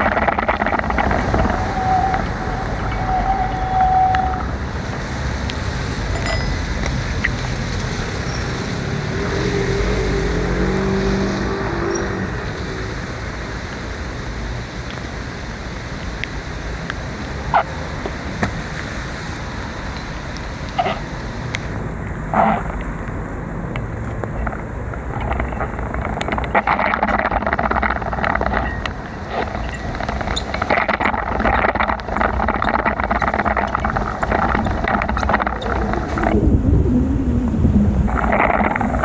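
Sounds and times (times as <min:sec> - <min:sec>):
tyres hissing on wet road: 0:00.0 - 0:36.5
cars passing: 0:00.0 - 0:39.0
vehicle low hum: 0:00.0 - 0:39.0
held tone: 0:06.1 - 0:06.9.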